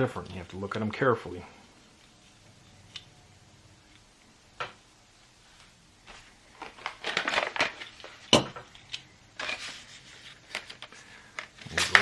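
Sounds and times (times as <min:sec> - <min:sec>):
plastic packaging crinkling: 0:06.5 - 0:12.0.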